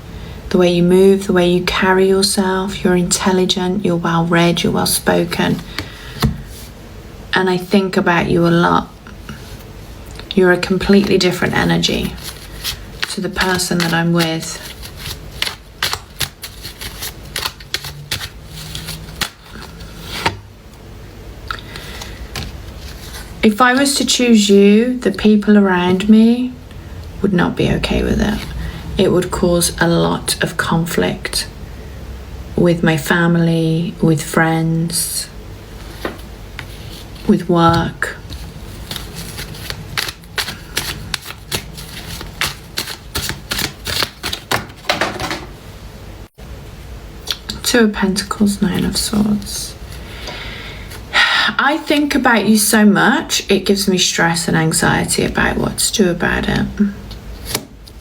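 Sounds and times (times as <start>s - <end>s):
cards being shuffled: 10.9s - 20.4s, 21.6s - 23.9s, 35.8s - 45.4s, 57.4s - 58.0s.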